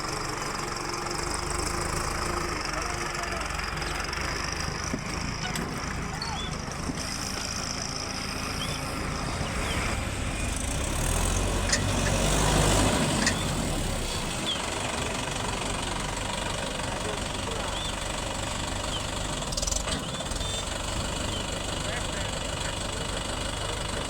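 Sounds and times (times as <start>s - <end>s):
diesel engine running: 0.0s - 24.0s
sharp metallic knocks: 11.4s - 12.3s.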